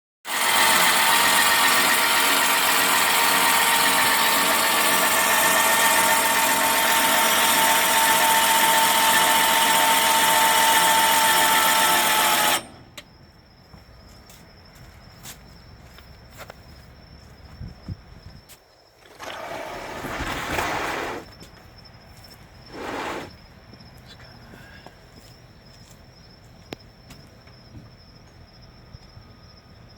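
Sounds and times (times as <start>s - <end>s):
small electric motor whining: 0.3s - 12.9s.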